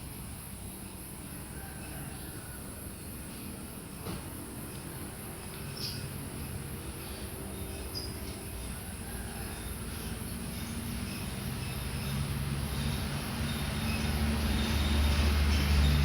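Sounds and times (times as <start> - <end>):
vehicle engine droning: 10.6 - 16.0.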